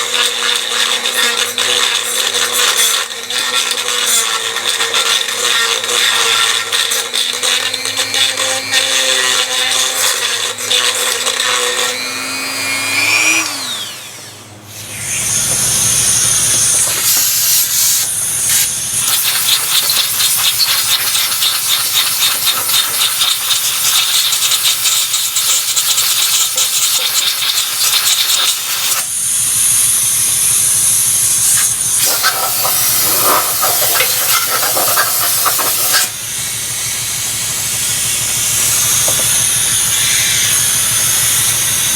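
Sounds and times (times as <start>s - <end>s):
power tool whine: 0.0s - 41.9s
loud hissing noise: 14.7s - 41.9s.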